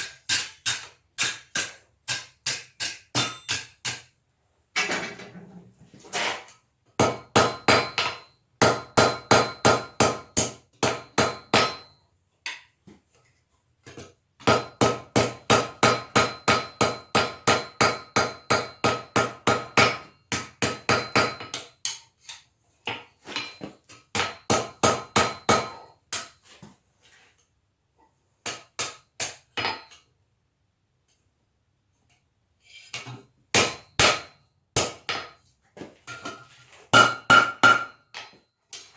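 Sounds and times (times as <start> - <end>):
hammer striking steel on anvil: 0.0 - 4.1, 7.0 - 11.9, 14.4 - 22.1, 23.4 - 26.3, 33.5 - 35.3, 36.1 - 38.4.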